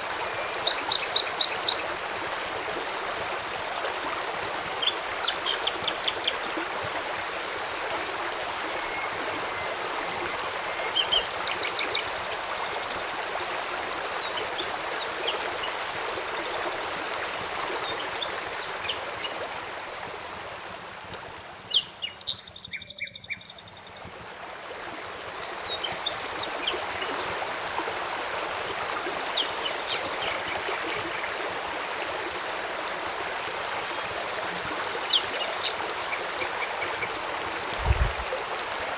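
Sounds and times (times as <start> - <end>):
small birds chirping: 0.0 - 7.3, 14.1 - 16.8, 17.5 - 19.8, 21.2 - 24.0, 25.6 - 27.4
rain: 0.0 - 22.1, 24.0 - 38.9
river water flowing: 0.0 - 38.9.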